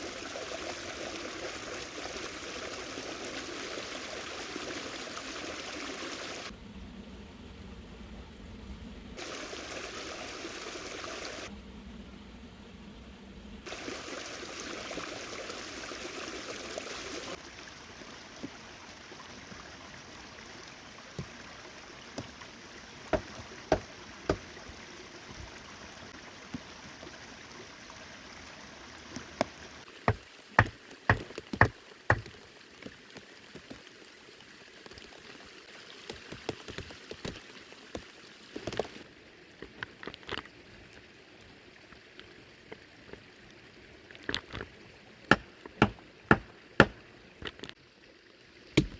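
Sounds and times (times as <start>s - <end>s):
rushing water: 0.0s - 6.6s, 9.2s - 11.5s, 13.6s - 48.9s
steady rain: 1.6s - 6.6s, 9.2s - 11.5s, 13.6s - 27.1s, 29.2s - 39.1s
sharp knocks and taps: 23.2s - 24.4s, 30.1s - 32.4s, 45.3s - 47.0s.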